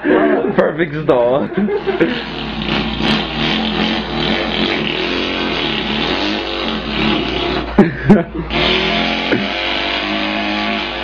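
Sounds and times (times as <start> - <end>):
man imitating an engine: 1.4 - 11.0.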